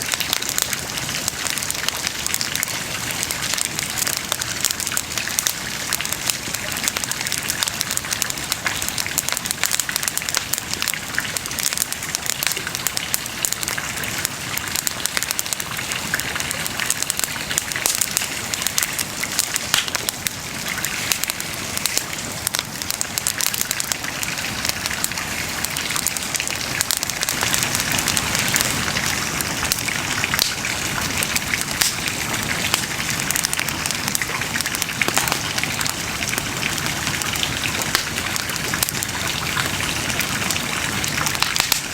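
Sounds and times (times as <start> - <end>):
bonfire crackling and popping: 0.0 - 41.9
fire hissing: 6.7 - 41.9.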